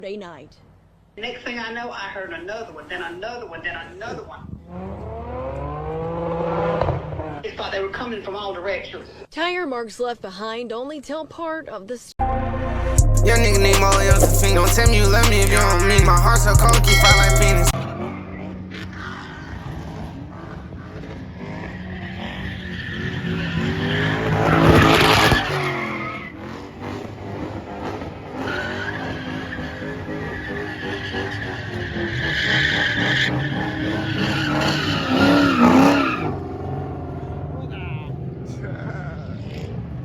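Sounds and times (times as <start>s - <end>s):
tyres skidding and screeching: 0.5s - 9.3s, 13.2s - 40.0s
car engines revving: 3.6s - 7.9s, 13.2s - 40.0s.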